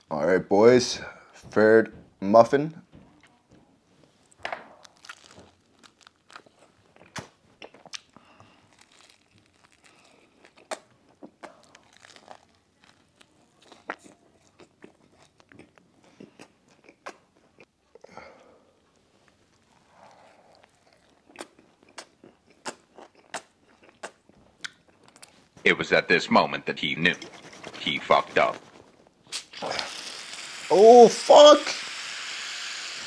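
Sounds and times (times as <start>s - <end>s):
crunching and chewing: 4.8s - 18.1s, 19.2s - 25.6s.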